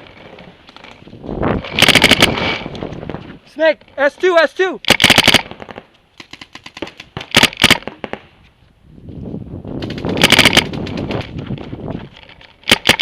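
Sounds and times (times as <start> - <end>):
rough rustling: 0.0 - 13.0
paintball markers firing: 4.8 - 8.2, 9.8 - 11.4, 12.6 - 13.0.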